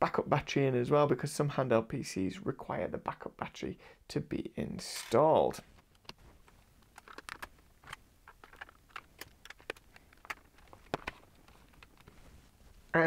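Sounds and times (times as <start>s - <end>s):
plastic device clicks and taps: 6.8s - 12.1s.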